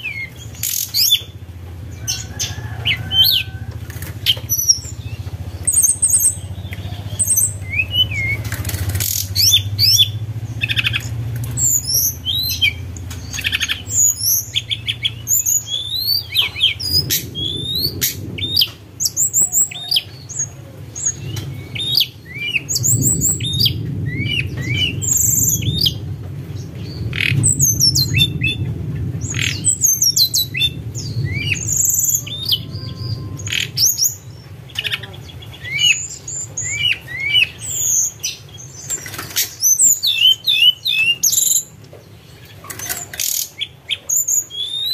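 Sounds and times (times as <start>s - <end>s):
steady low hum: 0.0s - 38.5s
songbird whistled chirps: 4.2s - 26.0s, 43.2s - 44.9s.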